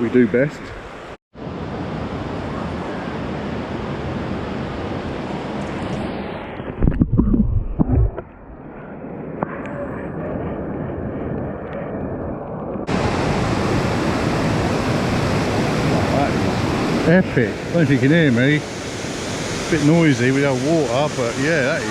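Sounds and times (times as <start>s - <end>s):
wind buffeting microphone: 1.6s - 21.9s
waterfall rushing: 12.9s - 21.9s.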